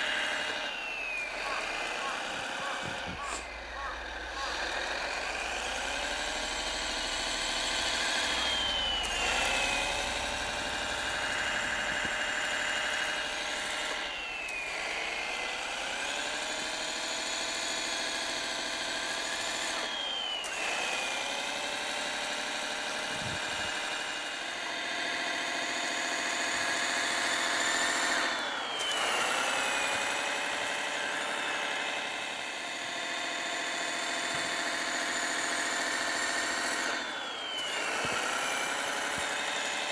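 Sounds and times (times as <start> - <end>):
simulated diesel engine from speaker: 0.0 - 20.7
high whine sweeping down: 0.5 - 15.2.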